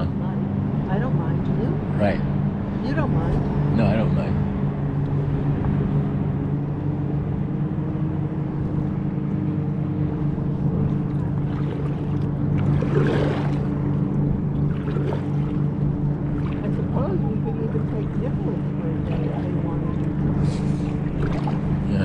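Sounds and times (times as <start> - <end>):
motorboat engine droning: 0.0 - 22.0
splash-like rush: 11.1 - 14.0, 14.6 - 17.1, 17.8 - 21.9.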